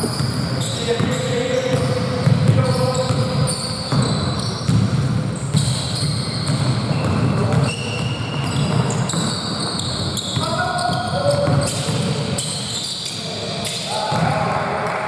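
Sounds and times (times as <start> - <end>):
sneakers squeaking on floor: 0.0 - 14.4
basketball bouncing on court: 0.0 - 14.5
players' voices: 10.3 - 12.1.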